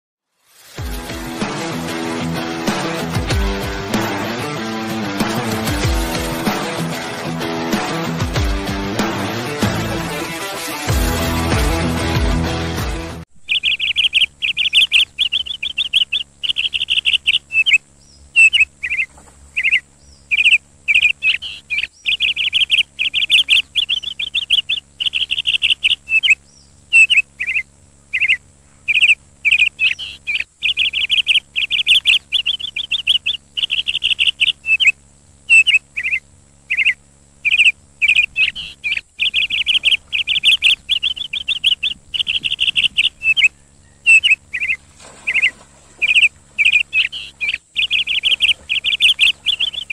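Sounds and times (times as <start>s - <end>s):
bird chirping in rapid trills: 13.4s - 49.9s.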